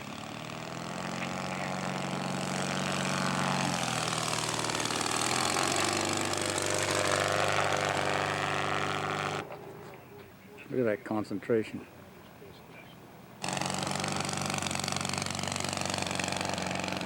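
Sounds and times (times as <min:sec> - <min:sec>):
model airplane engine running: 0:00.0 - 0:10.0, 0:13.4 - 0:17.0.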